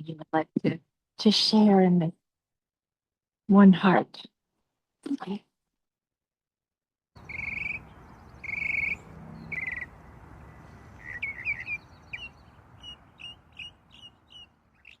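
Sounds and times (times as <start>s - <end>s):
birds calling: 7.2s - 15.0s.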